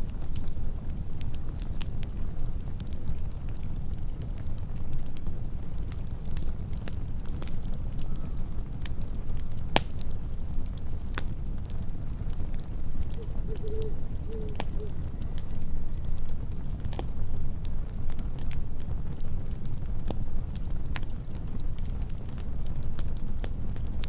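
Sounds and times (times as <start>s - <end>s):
campfire crackling: 0.0s - 24.0s
cricket chirping: 0.0s - 24.0s
low wavering call: 13.2s - 15.0s.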